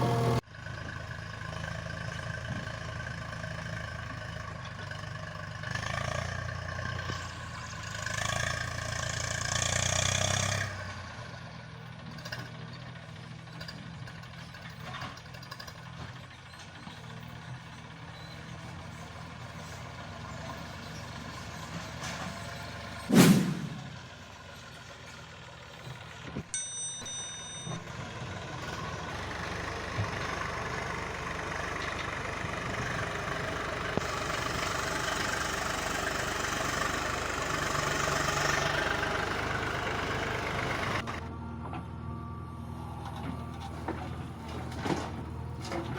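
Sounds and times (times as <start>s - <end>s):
diesel engine revving: 0.0s - 11.5s, 27.8s - 45.9s
loud sudden bang: 23.1s - 24.0s.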